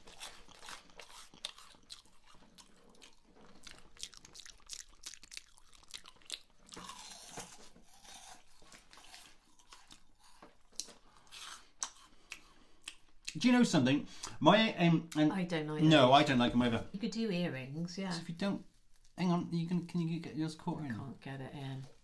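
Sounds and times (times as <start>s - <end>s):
crunchy snack chewing: 0.0s - 13.1s.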